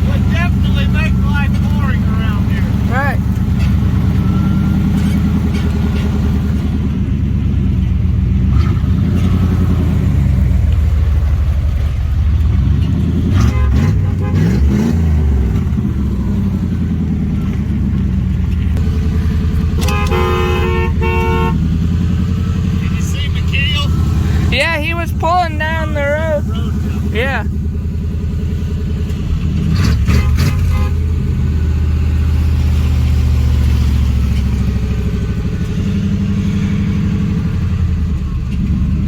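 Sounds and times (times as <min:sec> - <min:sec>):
car horn honks: 0:00.0 - 0:05.7, 0:13.3 - 0:15.0, 0:19.6 - 0:27.5, 0:30.1 - 0:31.2
vehicle engine running: 0:00.0 - 0:39.0.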